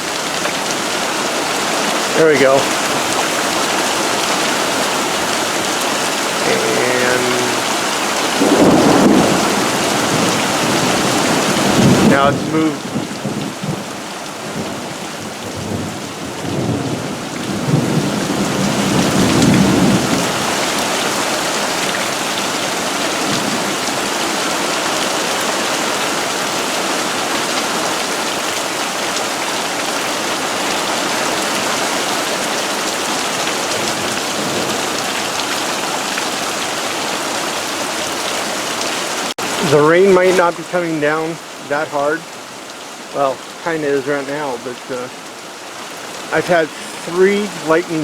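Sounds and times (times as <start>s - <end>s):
heavy rain pouring: 0.0s - 48.0s
low roll of thunder: 8.4s - 13.9s.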